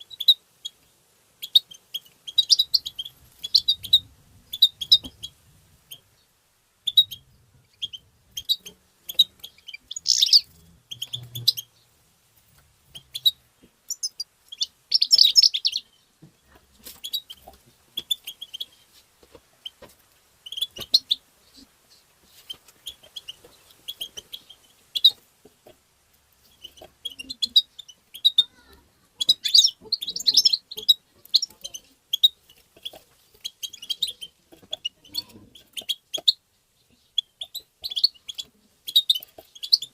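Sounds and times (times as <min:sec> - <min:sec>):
bird twittering chirps: 0:01.4 - 0:11.9, 0:12.9 - 0:16.1, 0:26.4 - 0:28.6, 0:29.2 - 0:39.9.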